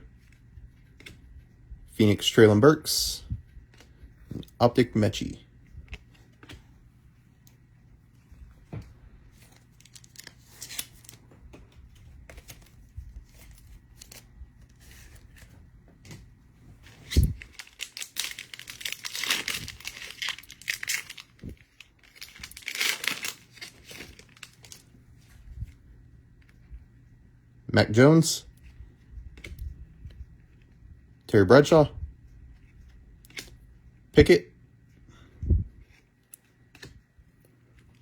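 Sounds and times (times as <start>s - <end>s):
foil wrapper tearing and crinkling: 9.8s - 11.2s, 17.0s - 24.9s.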